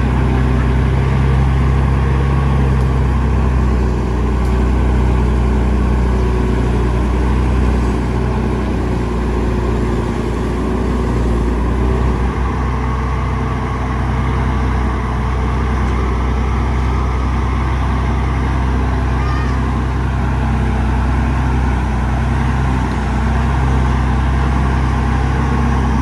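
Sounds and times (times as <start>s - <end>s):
heavy machinery diesel engine: 0.0s - 26.0s.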